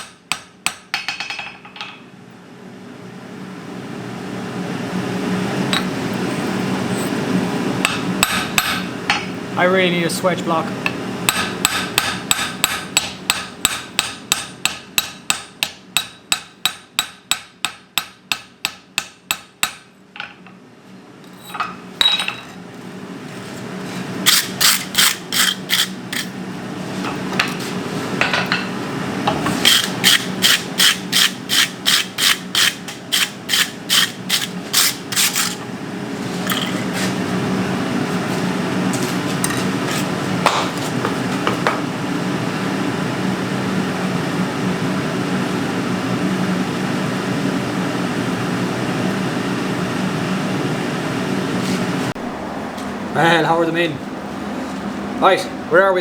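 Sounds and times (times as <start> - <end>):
hammer striking steel on anvil: 0.0 - 2.0, 7.8 - 9.3, 11.3 - 20.3
steady low hum: 2.2 - 56.0.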